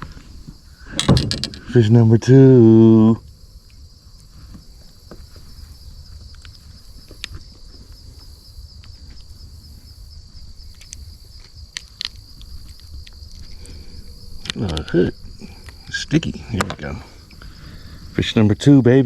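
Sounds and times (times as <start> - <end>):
crickets trilling: 0.0 - 19.0
small clicks and knocks: 0.9 - 1.8.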